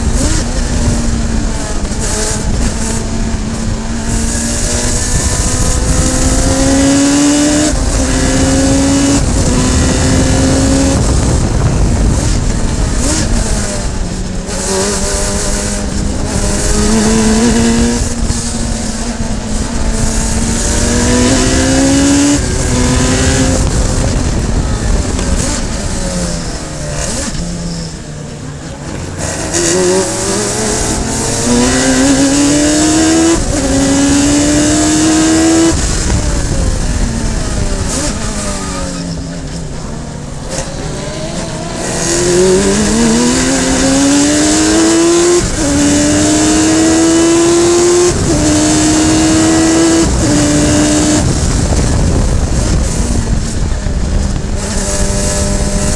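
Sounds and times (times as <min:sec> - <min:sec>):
racing car engine revving: 0:00.0 - 0:55.9.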